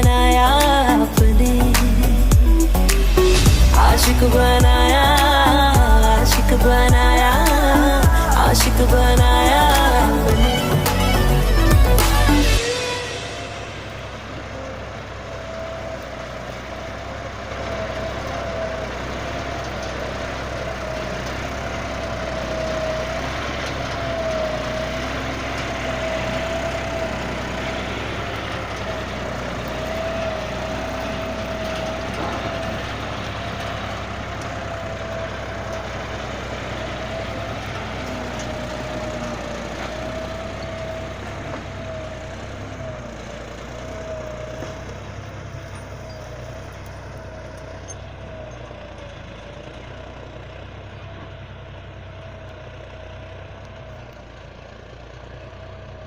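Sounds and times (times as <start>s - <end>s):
tractor engine running: 0.0s - 56.0s
thin high whine: 2.4s - 15.1s.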